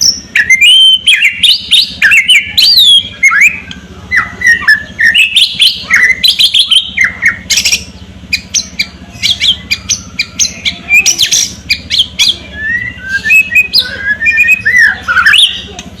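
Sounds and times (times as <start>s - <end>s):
bird singing whistled notes: 0.0s - 15.8s
harsh crackling bird notes: 0.0s - 16.0s.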